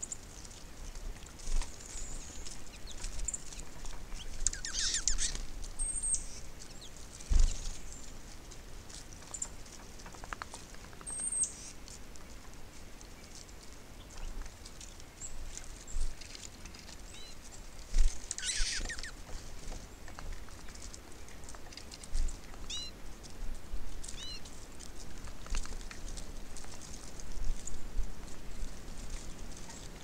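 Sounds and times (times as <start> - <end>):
small birds chirping: 0.0 - 8.2, 9.2 - 11.9, 13.0 - 23.0, 24.0 - 24.5
birds pecking and landing: 0.2 - 12.6, 13.2 - 30.0
bird chattering: 4.2 - 5.4, 18.4 - 19.2.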